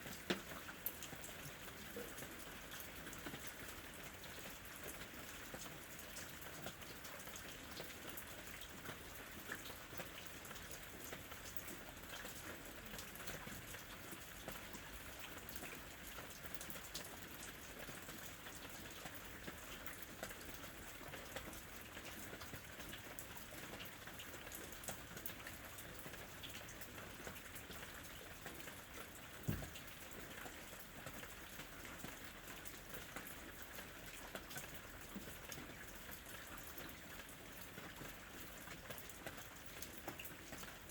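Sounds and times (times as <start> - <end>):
raindrops ticking on a surface: 0.0 - 40.9
low thump: 29.5 - 29.8.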